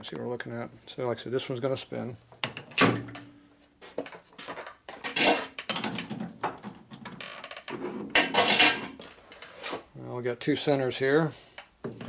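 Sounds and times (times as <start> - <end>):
metal clinking and scraping: 5.0 - 6.2, 7.0 - 9.7.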